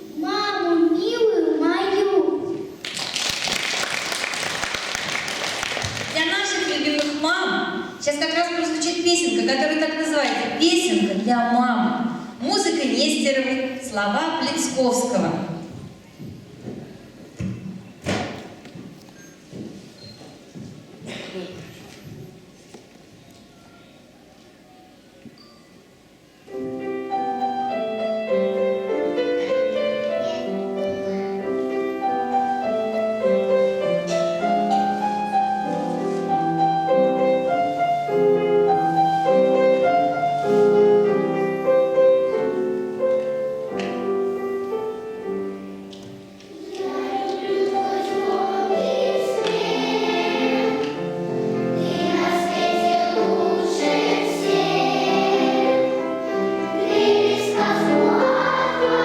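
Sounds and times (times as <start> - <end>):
instrumental accompaniment: 26.5 - 59.0
children singing together: 46.5 - 59.0.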